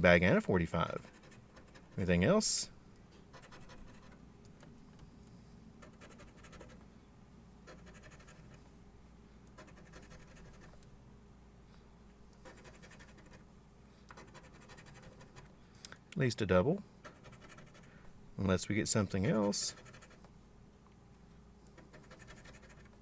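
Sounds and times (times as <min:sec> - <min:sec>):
coin scratching ticket: 0:03.3 - 0:04.2, 0:05.8 - 0:06.8, 0:07.7 - 0:08.6, 0:09.6 - 0:10.8, 0:12.4 - 0:13.4, 0:14.2 - 0:15.5, 0:17.0 - 0:17.9, 0:19.1 - 0:20.2, 0:21.8 - 0:23.0.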